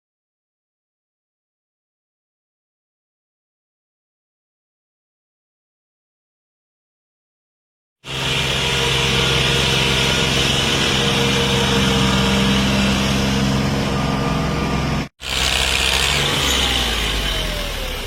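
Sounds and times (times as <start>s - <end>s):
tractor diesel engine running: 8.0s - 18.0s.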